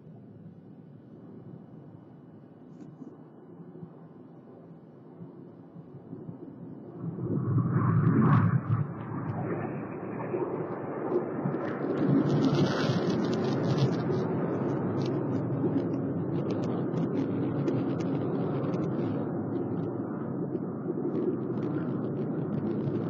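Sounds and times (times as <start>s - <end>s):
faint ticks and crackles: 0.0s - 7.0s, 8.3s - 23.0s
jet noise: 5.9s - 23.0s.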